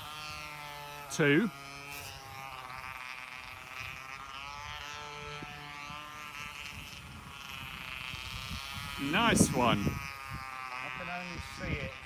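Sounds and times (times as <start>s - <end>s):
model aeroplane motor buzzing: 0.0s - 12.0s
wind buffeting microphone: 3.4s - 12.0s.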